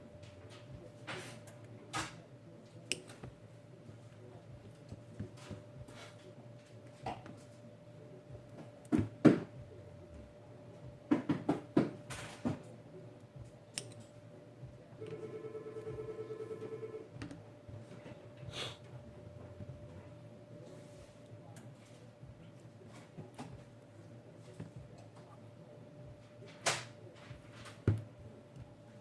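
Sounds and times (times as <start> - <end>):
faint steady hum: 12.7 - 22.8.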